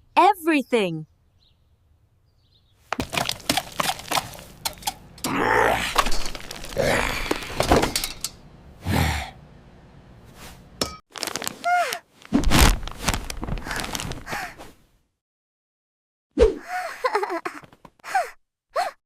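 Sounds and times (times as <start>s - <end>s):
cartoon thuds and cracks: 12.3s - 12.9s.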